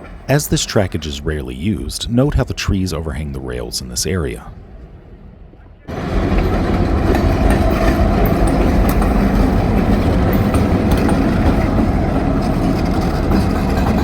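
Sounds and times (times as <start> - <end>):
diesel locomotive engine: 0.0 - 14.0
wheels on rails: 5.9 - 14.0.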